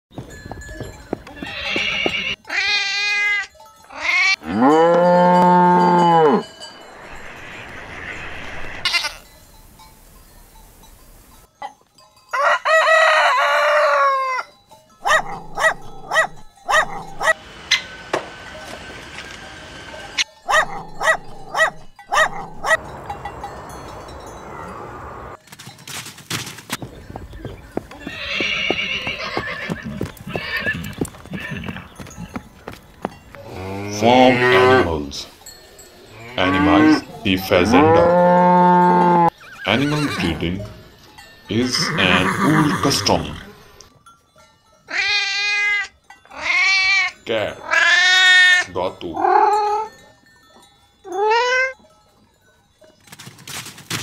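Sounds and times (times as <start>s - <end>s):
cow mooing: 4.0s - 6.7s, 33.4s - 35.0s, 36.1s - 40.0s
dog barking: 15.0s - 17.4s, 20.5s - 22.9s
wavering animal call: 44.9s - 50.0s, 51.1s - 51.8s.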